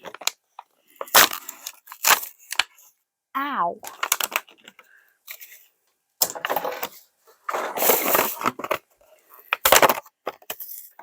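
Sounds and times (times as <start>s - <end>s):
plastic bags crinkling and tearing: 1.0s - 2.7s, 3.8s - 4.8s.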